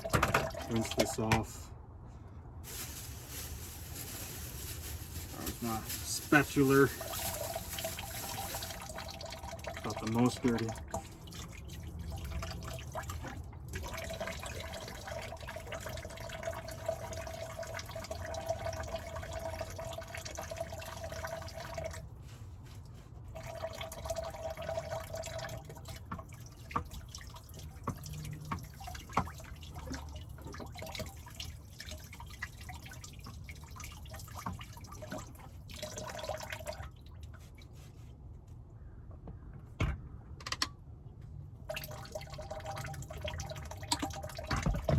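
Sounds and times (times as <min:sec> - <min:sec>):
water trickling into sink: 0:00.0 - 0:01.4, 0:05.6 - 0:22.1, 0:23.3 - 0:37.7, 0:41.7 - 0:44.9.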